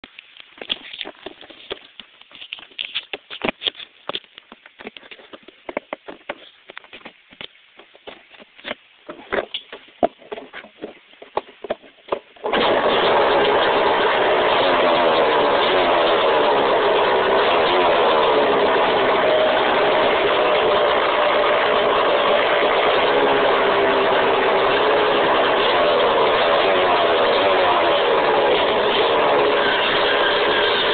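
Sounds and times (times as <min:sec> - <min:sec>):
dirt bike engine running: 0:12.4 - 0:30.9.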